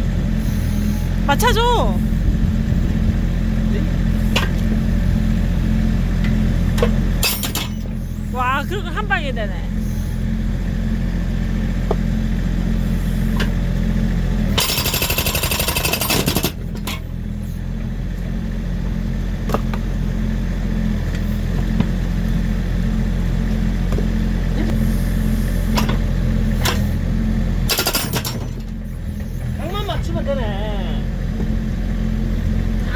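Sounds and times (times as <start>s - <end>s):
diesel engine running: 0.0s - 32.9s
hydraulic breaker hammering log: 14.5s - 16.8s, 27.7s - 28.8s.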